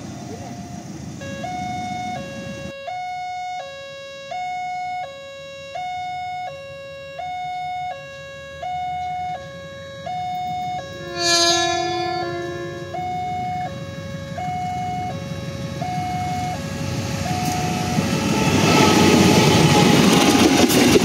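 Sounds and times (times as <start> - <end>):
level crossing alarm two-tone: 0.5 - 18.0
horn: 10.8 - 13.1.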